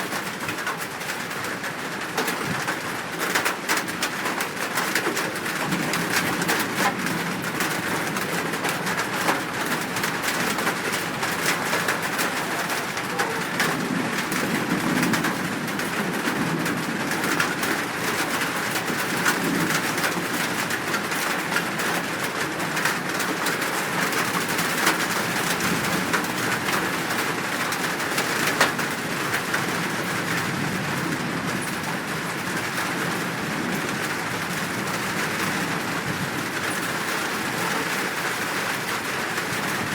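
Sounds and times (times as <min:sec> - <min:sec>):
doves cooing: 0:07.2 - 0:15.5.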